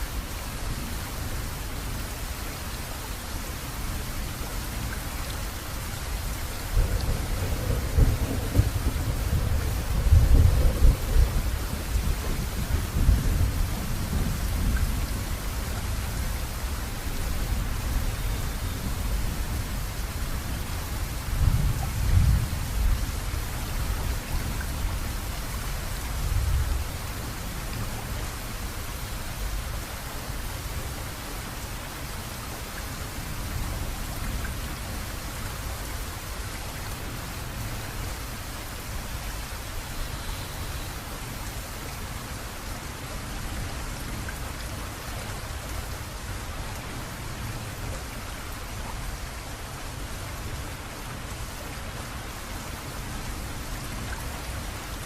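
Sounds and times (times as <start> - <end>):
rain hissing: 0.0 - 50.0
thunder rumbling: 6.7 - 14.4.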